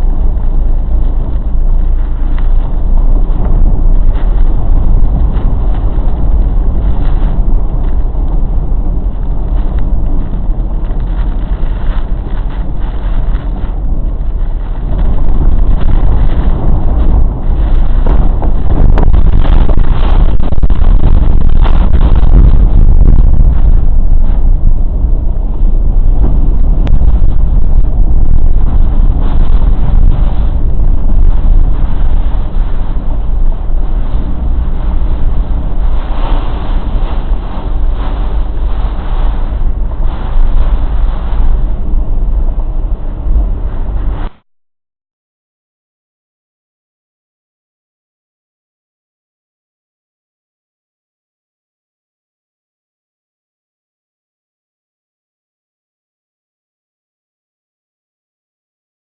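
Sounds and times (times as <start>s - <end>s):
wind blasting across microphone: 0.0s - 44.5s.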